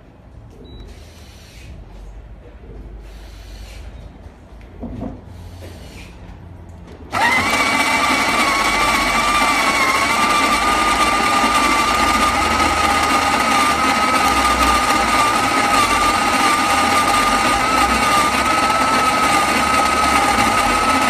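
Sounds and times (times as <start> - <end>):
coffee maker motor whining: 7.1 - 21.0.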